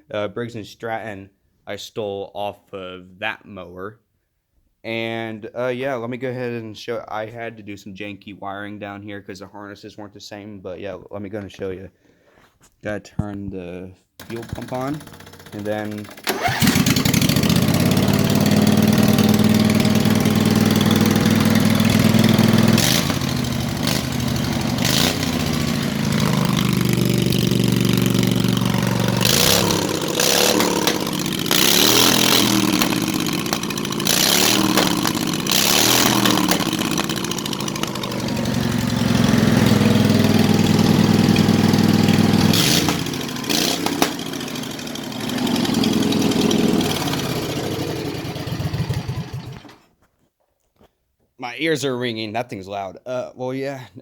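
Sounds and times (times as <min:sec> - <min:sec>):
engine pops and bangs: 0:14.2 - 0:49.8
lawnmower engine revving: 0:14.2 - 0:49.8.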